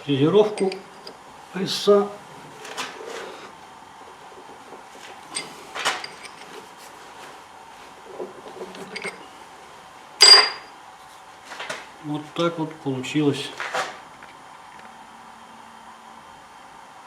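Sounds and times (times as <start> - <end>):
sharp ringing metal clink: 10.2 - 10.7.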